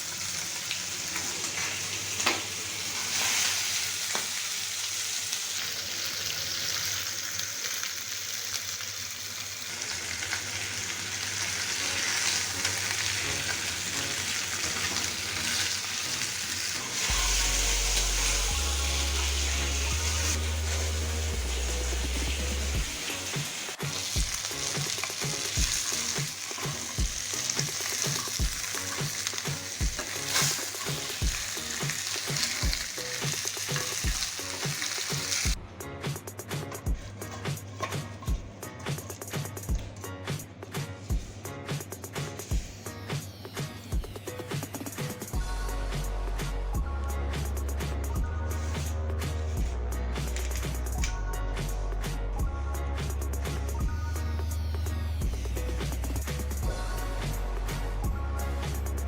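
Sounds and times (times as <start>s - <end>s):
food sizzling in oil: 0.0s - 35.6s
stirring in pan: 23.7s - 35.6s.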